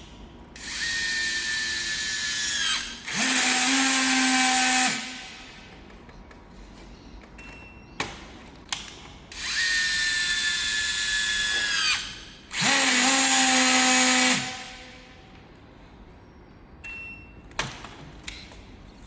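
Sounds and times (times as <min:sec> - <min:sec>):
electric drill motor whining: 0:00.6 - 0:05.2, 0:09.4 - 0:14.8.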